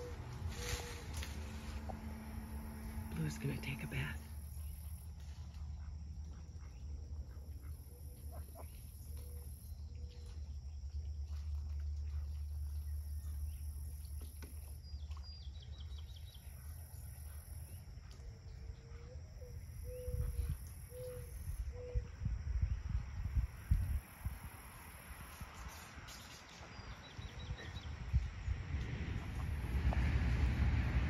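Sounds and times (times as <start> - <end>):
insects droning in pulses: 0.0 - 10.1, 16.3 - 26.1
low steady rumble: 0.0 - 20.8, 26.9 - 31.0.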